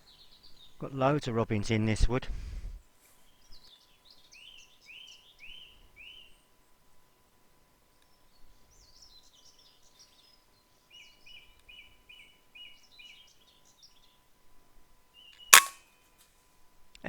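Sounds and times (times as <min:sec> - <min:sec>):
songbirds singing: 0:00.0 - 0:01.9, 0:03.2 - 0:06.8, 0:07.9 - 0:14.4, 0:15.1 - 0:15.7
air rifle shot: 0:15.6 - 0:15.8.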